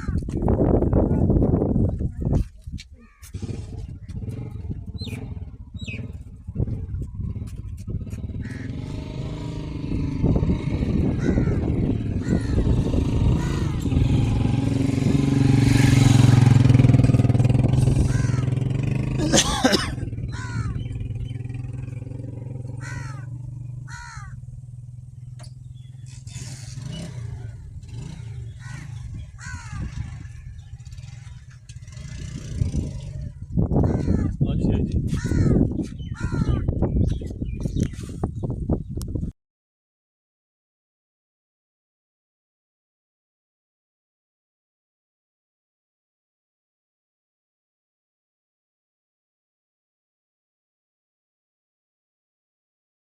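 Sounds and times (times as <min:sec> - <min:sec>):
tractor diesel engine running: 0:03.1 - 0:34.3.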